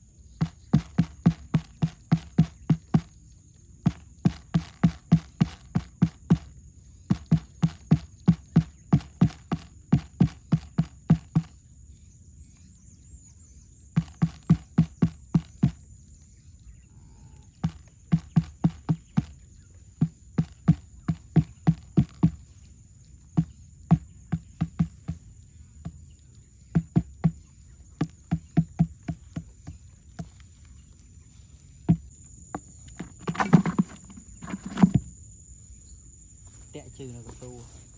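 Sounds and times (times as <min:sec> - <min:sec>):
quick even thuds: 0:00.3 - 0:03.2, 0:03.8 - 0:11.6, 0:13.9 - 0:15.9, 0:17.5 - 0:22.6, 0:23.2 - 0:30.8, 0:31.8 - 0:35.2.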